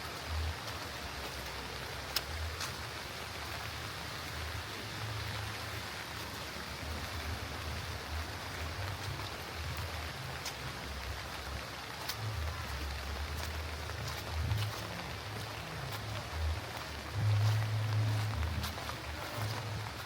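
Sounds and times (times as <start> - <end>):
light rain falling: 0.0 - 20.0
low uneven rumble: 5.4 - 20.0.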